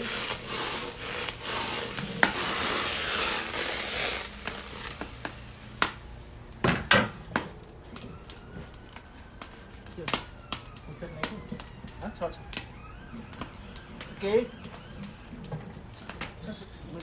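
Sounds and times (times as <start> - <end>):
oil sizzling in a pan: 0.0 - 6.9.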